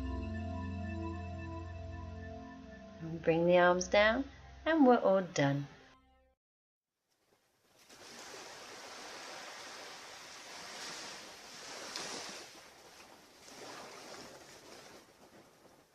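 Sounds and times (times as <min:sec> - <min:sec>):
waves washing onto beach: 0:07.8 - 0:15.9.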